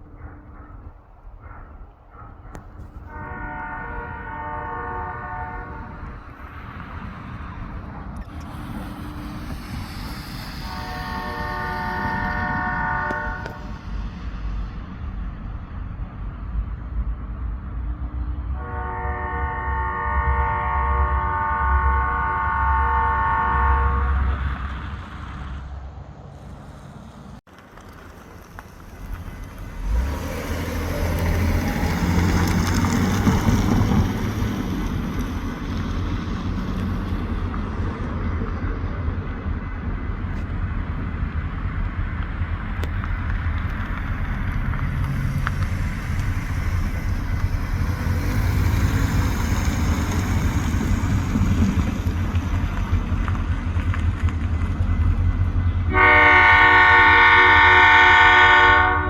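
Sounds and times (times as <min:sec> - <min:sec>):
diesel locomotives rumbling: 0:00.0 - 0:59.0
locomotive horn blowing: 0:03.0 - 0:06.3, 0:10.6 - 0:13.7, 0:18.5 - 0:24.4, 0:55.9 - 0:59.0.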